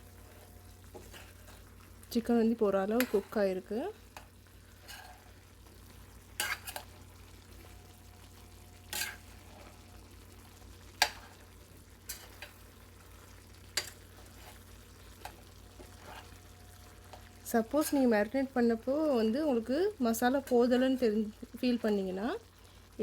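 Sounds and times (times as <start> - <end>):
spoon scraping a pan: 0.0 - 1.8, 2.8 - 18.3
chicken simmering: 0.0 - 23.0.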